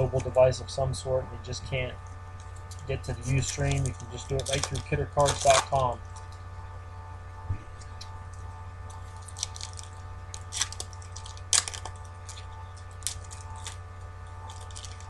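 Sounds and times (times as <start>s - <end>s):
card wrappers crinkling and tearing: 2.4s - 6.5s, 7.7s - 15.0s.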